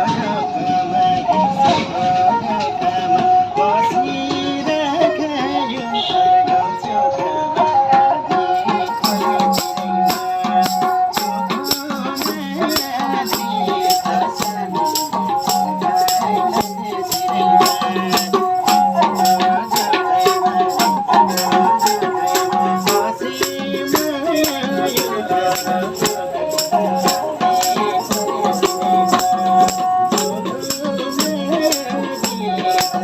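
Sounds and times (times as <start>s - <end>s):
rattling percussion beat: 8.6s - 33.0s.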